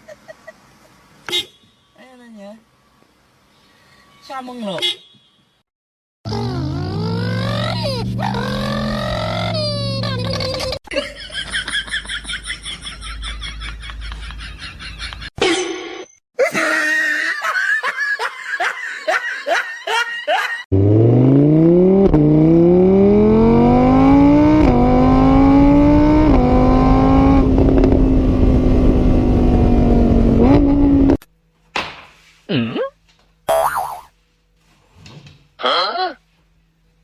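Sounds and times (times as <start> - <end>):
vehicle engine accelerating: 6.3 - 10.7, 20.7 - 31.2.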